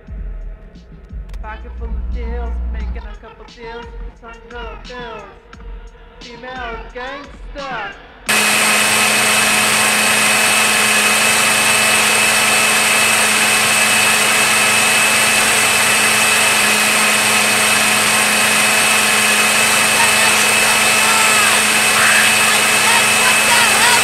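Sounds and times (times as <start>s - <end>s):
steady whining tones: 8.3s - 24.0s
harsh amplified noise: 8.4s - 24.0s.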